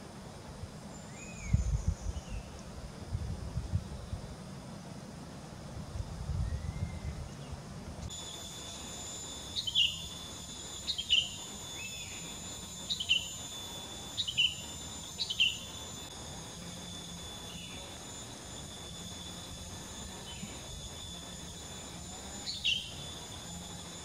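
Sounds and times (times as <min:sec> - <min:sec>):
high insect whine: 0:00.0 - 0:24.0
songbird down-slurred calls: 0:09.6 - 0:12.3, 0:14.2 - 0:15.8, 0:22.4 - 0:23.2.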